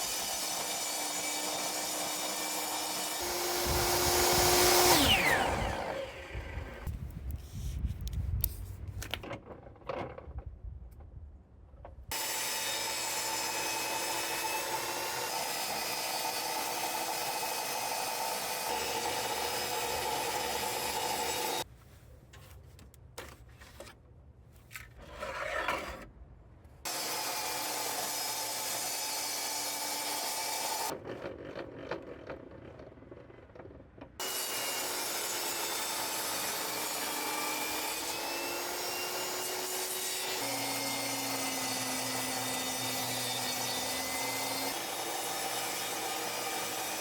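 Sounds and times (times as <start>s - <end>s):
table saw cutting wood: 0.0s - 6.9s, 12.1s - 21.6s, 26.9s - 31.0s, 34.2s - 47.0s
handling sounds: 21.7s - 25.1s.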